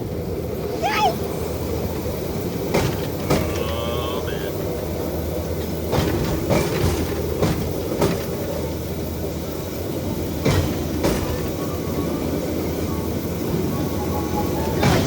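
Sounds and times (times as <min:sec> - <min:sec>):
steel wheels rumbling on track: 0:00.0 - 0:15.0
wheels clacking over rail joints: 0:00.0 - 0:15.0.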